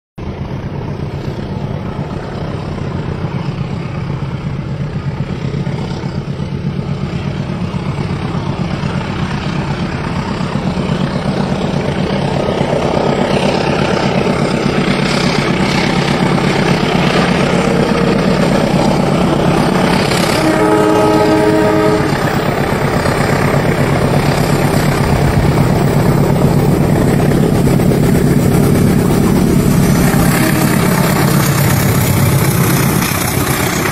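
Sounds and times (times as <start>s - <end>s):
train rumbling on rails: 0.2s - 33.9s
train horn: 19.4s - 25.2s, 29.8s - 31.7s.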